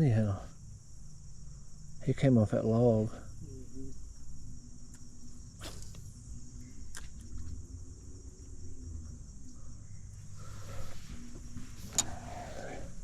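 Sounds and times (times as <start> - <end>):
insects chirping: 0.0 - 13.0
low hum: 0.0 - 13.0
sharp clicks: 11.9 - 12.3.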